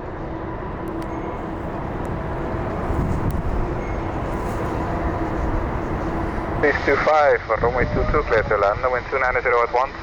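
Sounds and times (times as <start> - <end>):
faint whining tones: 0.0 - 7.1
jet engines rumbling: 0.0 - 10.0.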